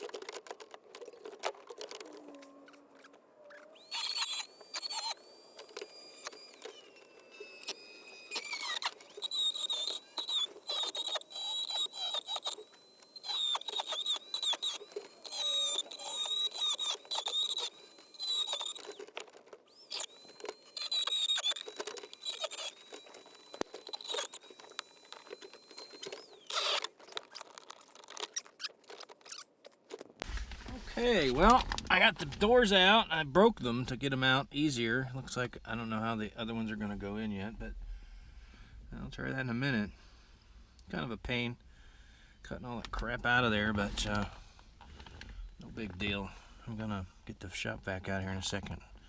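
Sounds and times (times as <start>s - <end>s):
power tool whining: 0.0s - 29.5s.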